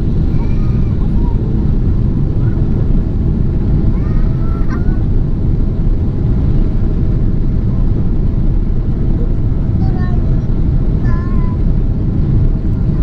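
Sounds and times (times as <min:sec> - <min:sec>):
jet engines rumbling in cabin: 0:00.0 - 0:13.0
rushing air: 0:00.0 - 0:13.0.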